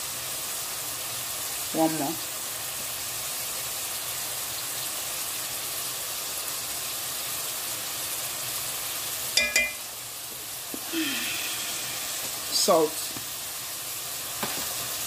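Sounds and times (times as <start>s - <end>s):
meat and vegetables sizzling in a pot: 0.0s - 15.0s
spoon clinking against a pot: 9.4s - 9.9s.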